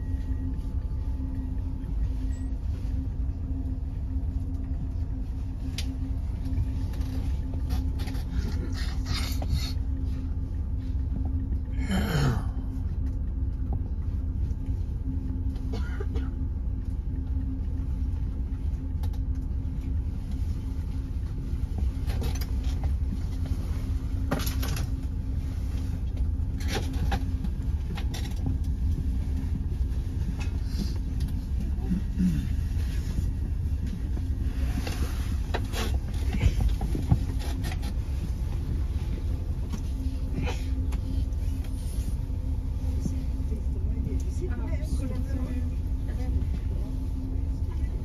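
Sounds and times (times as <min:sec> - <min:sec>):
constant hum: 0:00.0 - 0:48.0
train rumble inside carriage: 0:00.0 - 0:48.0.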